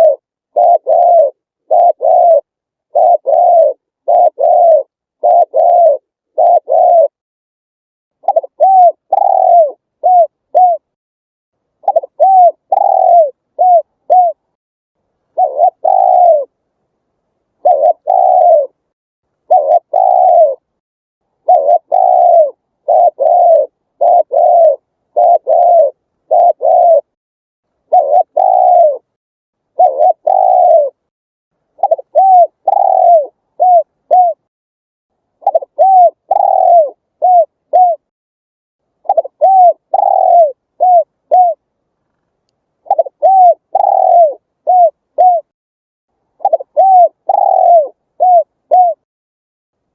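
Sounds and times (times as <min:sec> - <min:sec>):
dove cooing: 0:00.0 - 0:07.2, 0:08.2 - 0:11.0, 0:11.8 - 0:14.4, 0:15.3 - 0:16.6, 0:17.6 - 0:18.8, 0:19.5 - 0:20.7, 0:21.4 - 0:27.2, 0:27.8 - 0:29.1, 0:29.7 - 0:31.0, 0:31.8 - 0:34.5, 0:35.4 - 0:38.1, 0:39.0 - 0:41.6, 0:42.8 - 0:45.5, 0:46.4 - 0:49.0.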